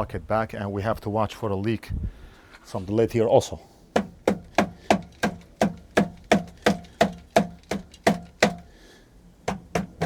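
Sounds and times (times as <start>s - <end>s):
sharp knocks on pump lid: 4.0s - 8.7s, 9.5s - 10.0s.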